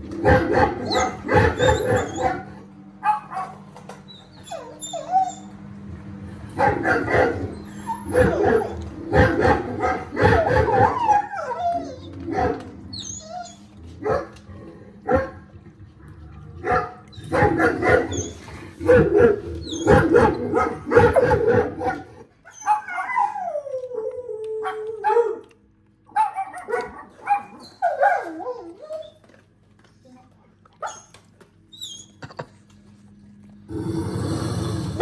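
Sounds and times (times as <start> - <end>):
dog barking and yipping: 0.2 - 3.6, 6.6 - 12.6, 16.6 - 23.4, 26.1 - 28.7
dog howling: 0.3 - 2.5, 7.0 - 13.7, 22.6 - 25.5.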